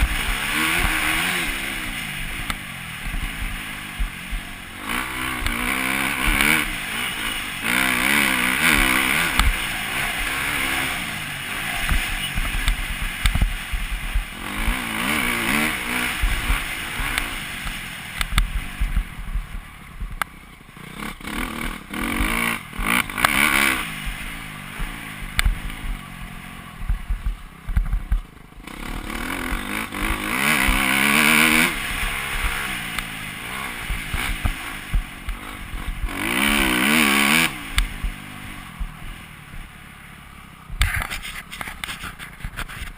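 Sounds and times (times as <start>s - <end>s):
motocross motorcycle engine revving: 0.0s - 42.9s.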